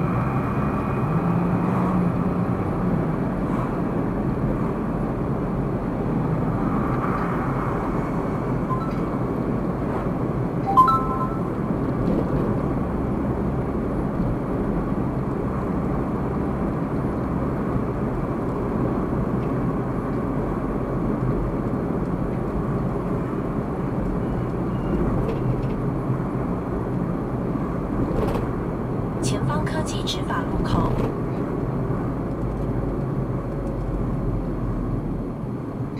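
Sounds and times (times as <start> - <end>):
car driving road noise: 0.0 - 35.9
short high beep: 8.7 - 9.1, 10.6 - 11.6.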